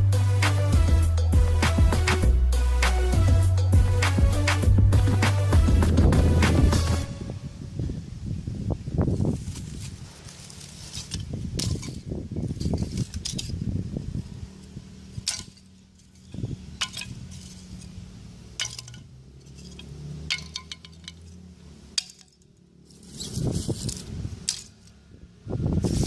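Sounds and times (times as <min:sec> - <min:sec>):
low rustle: 0:04.0 - 0:15.2
charcoal pieces clinking: 0:18.6 - 0:21.3.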